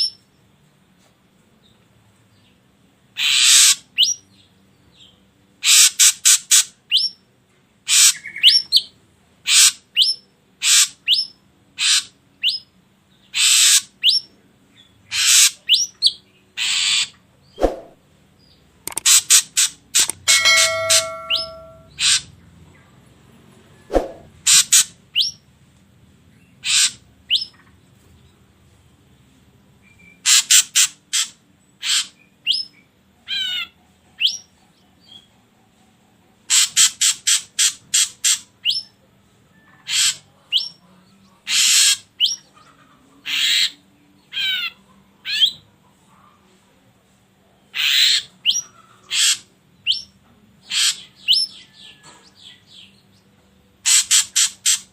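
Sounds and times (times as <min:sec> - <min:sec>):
bird calling harsh notes: 0:18.9 - 0:22.2.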